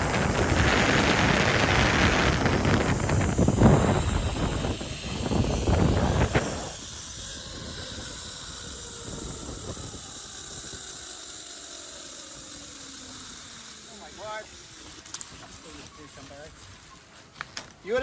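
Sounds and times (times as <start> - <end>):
wind buffeting microphone: 0.0 - 11.2
faint falling whine: 0.0 - 17.2
pulleys hissing along cable: 0.0 - 18.0.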